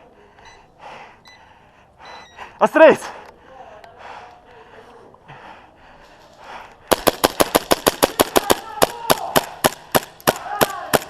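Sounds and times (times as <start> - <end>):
airsoft guns firing: 6.9 - 11.0.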